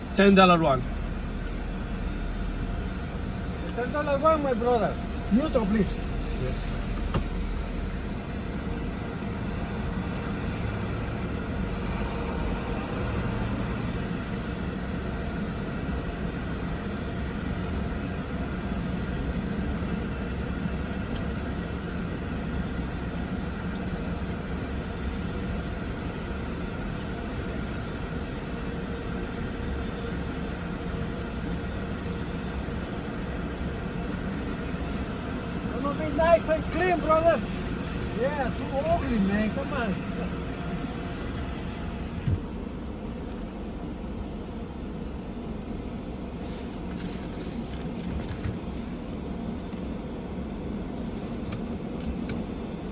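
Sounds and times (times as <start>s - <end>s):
car wash rumbling and rushing: 0.0s - 52.9s.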